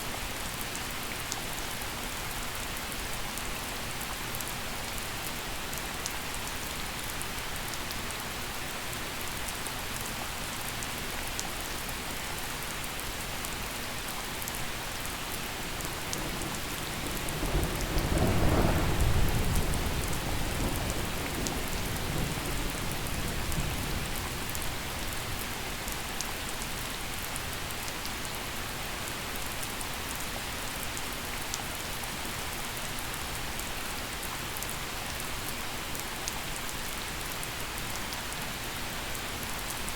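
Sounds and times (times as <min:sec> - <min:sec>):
steady rain: 0:00.0 - 0:39.9
thunder rumbling: 0:15.8 - 0:24.8.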